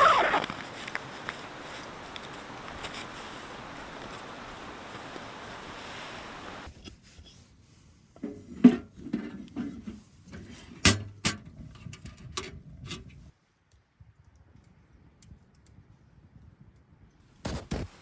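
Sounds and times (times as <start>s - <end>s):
rustling: 0.0s - 6.7s.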